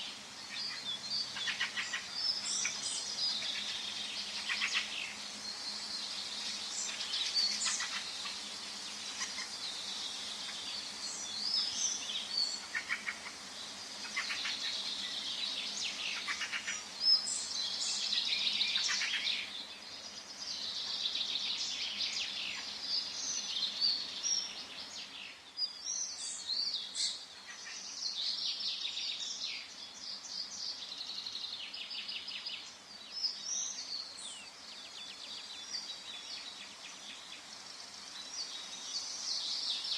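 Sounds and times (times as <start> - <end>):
faint background hiss: 0.0 - 39.9
small birds singing and chirping: 0.0 - 39.9.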